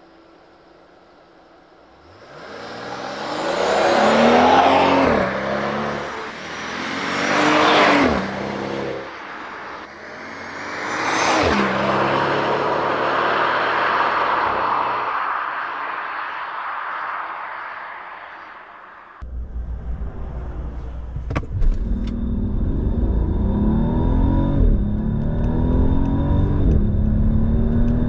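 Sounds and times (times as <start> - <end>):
car engine accelerating hard: 2.0 - 9.0, 19.7 - 28.0.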